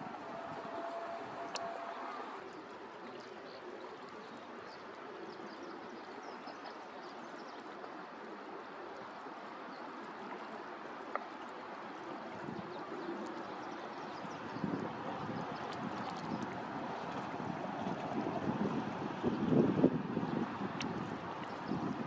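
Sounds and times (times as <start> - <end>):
flowing stream water: 0.0 - 22.0
click: 1.4 - 2.3.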